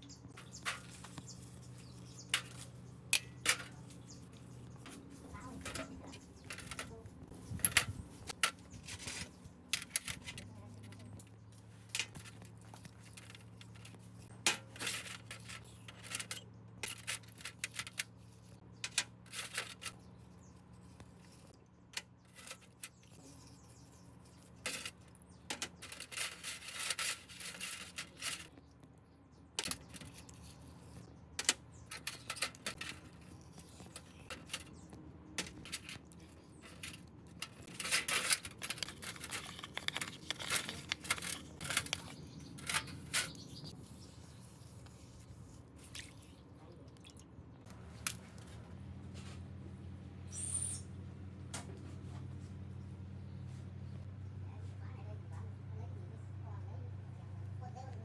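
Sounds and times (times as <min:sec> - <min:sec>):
faint low hum: 0:00.0 - 0:58.0
metal parts and tools clinking: 0:29.6 - 0:45.1.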